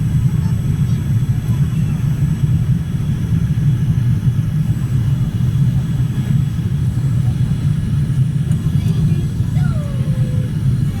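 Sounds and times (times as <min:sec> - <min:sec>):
airliner cabin engine drone: 0:00.0 - 0:11.0
airflow noise: 0:05.4 - 0:11.0.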